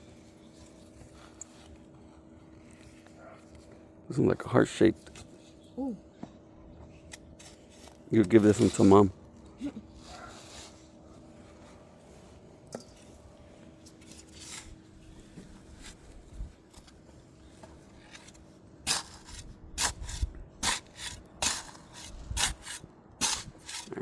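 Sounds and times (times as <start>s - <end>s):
shovel scraping into soil: 7.4s - 9.1s, 9.9s - 11.0s, 13.8s - 16.2s, 17.8s - 24.0s.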